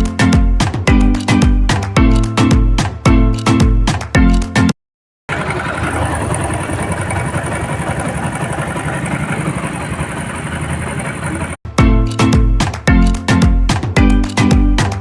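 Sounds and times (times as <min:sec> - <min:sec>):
motorcycle engine idling: 0:05.3 - 0:11.6.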